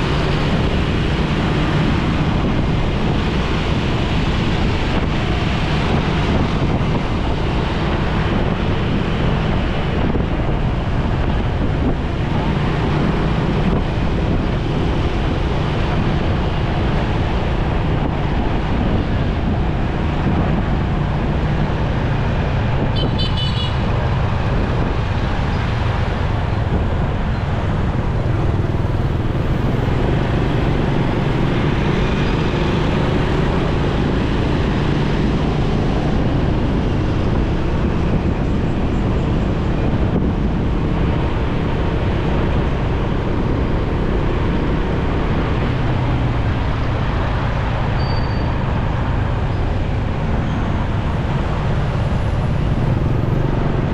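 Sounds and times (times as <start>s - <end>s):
road traffic: 0.0s - 53.9s
motorcycle engine: 27.7s - 35.8s.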